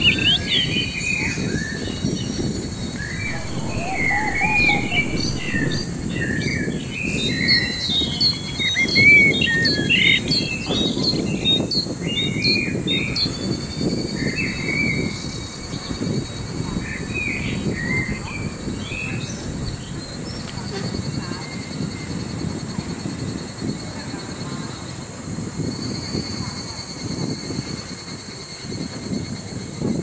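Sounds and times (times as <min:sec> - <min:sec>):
low background rumble: 0:02.6 - 0:09.6.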